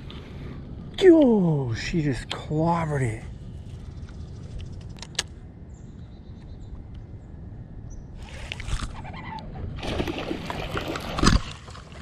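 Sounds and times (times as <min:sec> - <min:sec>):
wind rumbling on microphone: 0:03.1 - 0:12.0
rustling and splashing water: 0:08.2 - 0:12.0.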